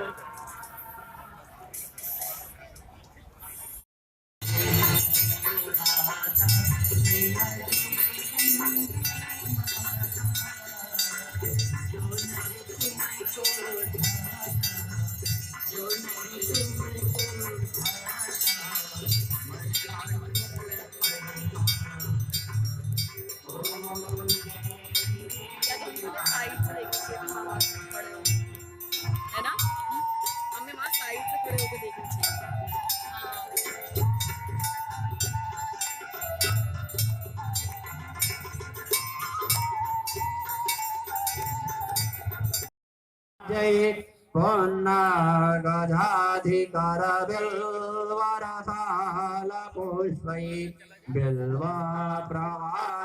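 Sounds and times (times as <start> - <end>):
steady drum beat: 4.4 - 40.1
cymbals clanging: 4.4 - 42.7
hand bells ringing: 4.4 - 42.7
held wavering melody: 4.4 - 42.7
devotional singing: 4.5 - 29.6, 43.4 - 53.0.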